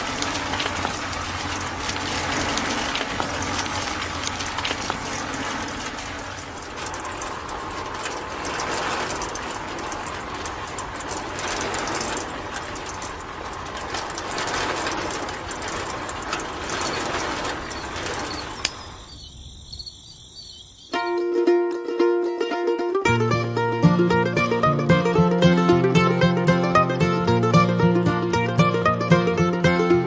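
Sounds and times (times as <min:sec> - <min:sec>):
mechanical rattling of fine clicks: 0:00.0 - 0:19.0.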